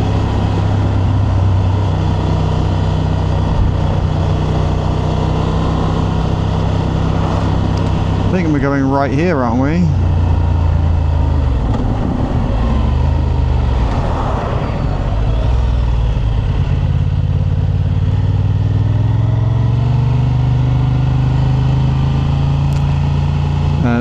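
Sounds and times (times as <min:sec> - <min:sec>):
motorcycle engine running: 0:00.0 - 0:24.0
wind and road noise: 0:00.0 - 0:24.0.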